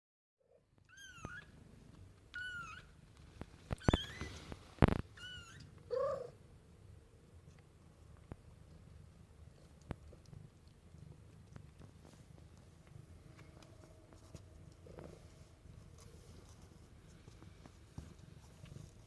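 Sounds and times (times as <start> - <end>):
kitten mewing: 5.2 - 6.4.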